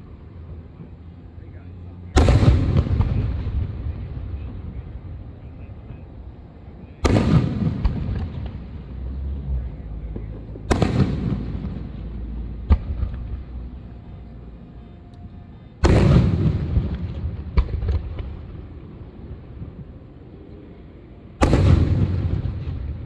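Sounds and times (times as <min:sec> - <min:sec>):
fireworks booming with rumble: 0:02.1 - 0:14.3, 0:15.7 - 0:20.0, 0:21.4 - 0:23.0.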